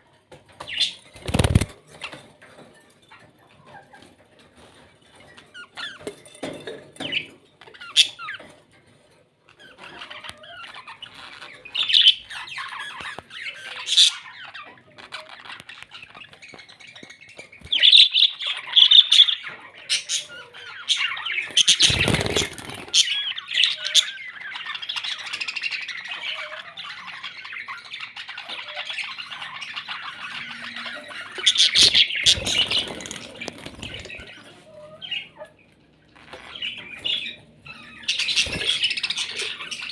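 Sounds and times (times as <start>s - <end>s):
parrots chattering: 9.5s - 39.9s.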